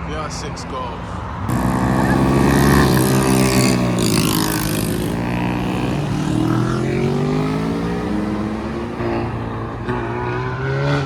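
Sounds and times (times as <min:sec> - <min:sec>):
car engine revving: 0:00.1 - 0:11.0.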